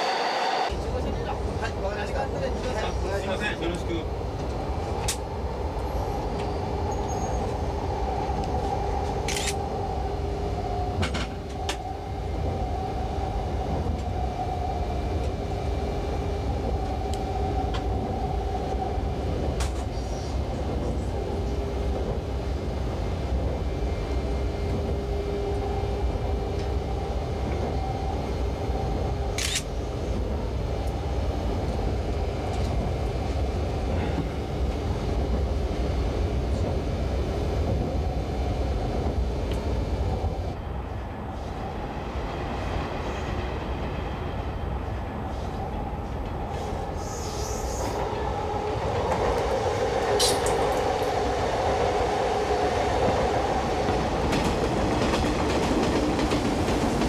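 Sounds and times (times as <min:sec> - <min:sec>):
train low rumble: 0:00.0 - 0:57.0.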